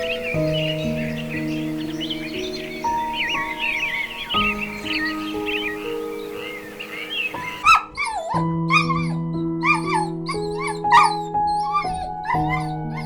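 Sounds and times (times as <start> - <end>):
soft piano music: 0.0 - 13.0
dog whining yips: 7.3 - 13.0.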